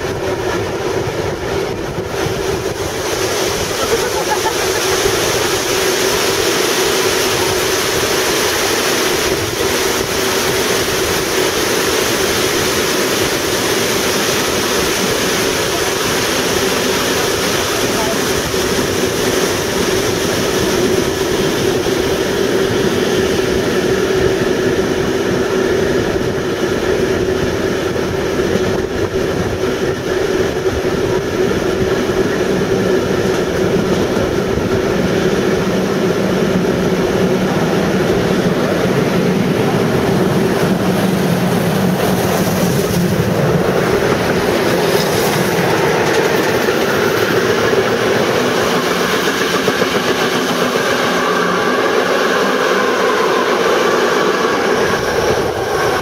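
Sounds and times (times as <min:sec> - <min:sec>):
rushing air: 0:00.0 - 0:56.0
steam locomotive passing: 0:00.0 - 0:56.0
train wheels on rails: 0:00.0 - 0:56.0.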